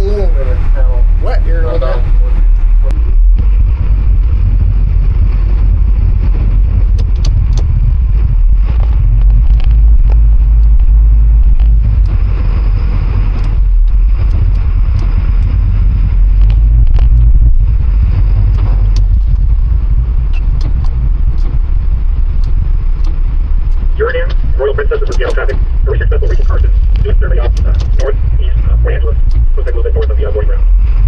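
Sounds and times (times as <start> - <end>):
boat engine rumbling: 0.0 - 31.0
faint clicks: 20.3 - 25.6.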